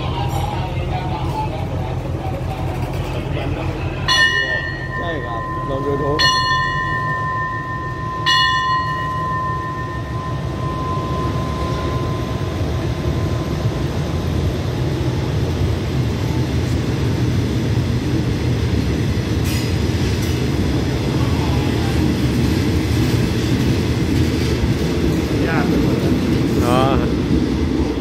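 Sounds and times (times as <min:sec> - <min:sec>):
train wheels rumbling on rail: 0:00.0 - 0:28.0
ringing bell tone: 0:04.0 - 0:13.6.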